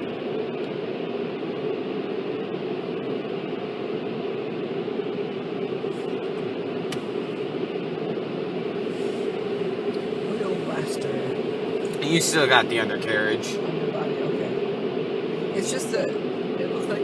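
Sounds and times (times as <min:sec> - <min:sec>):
car wash spray and machinery: 0:05.8 - 0:07.5, 0:08.3 - 0:14.5.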